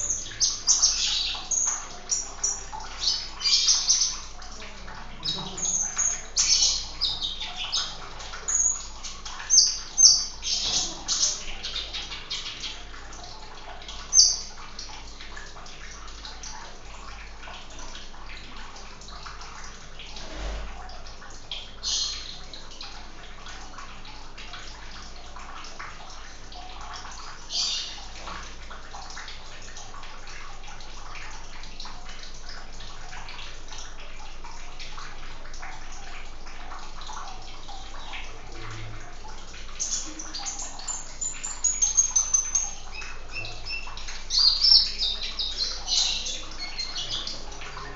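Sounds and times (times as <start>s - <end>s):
trickling water: 0.0s - 47.9s
small bird chirping: 39.8s - 47.4s.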